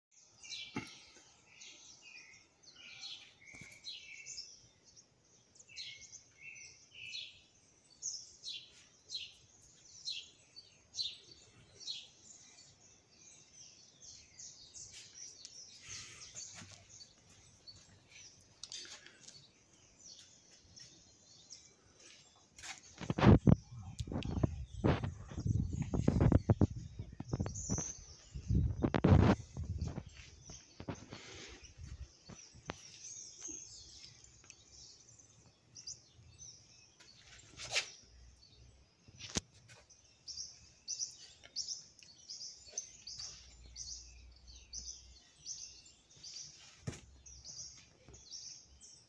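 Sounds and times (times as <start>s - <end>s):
small birds chirping: 0.1s - 49.0s.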